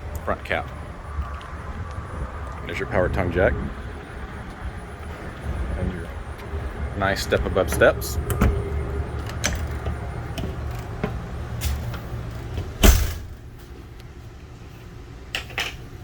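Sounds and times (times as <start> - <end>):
footsteps on metal steps: 4.4 - 13.9
door shutting knock: 12.6 - 13.3.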